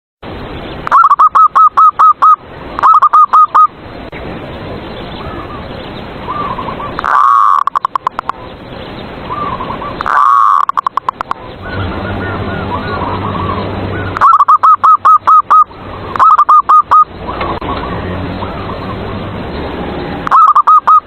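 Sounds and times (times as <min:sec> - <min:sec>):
dove cooing: 0:00.9 - 0:03.7, 0:06.3 - 0:08.3, 0:09.3 - 0:19.0, 0:20.2 - 0:21.0.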